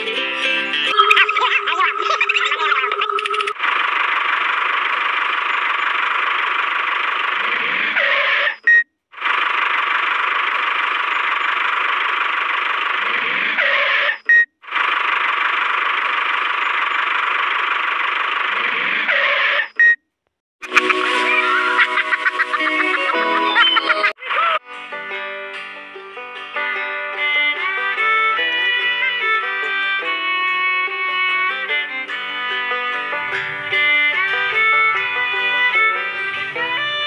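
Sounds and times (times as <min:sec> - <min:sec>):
toy tractor engine noise: 0:00.0 - 0:20.0, 0:20.6 - 0:25.2, 0:25.8 - 0:37.0
short high beep: 0:00.9 - 0:03.6
falling sweep: 0:20.6 - 0:24.2.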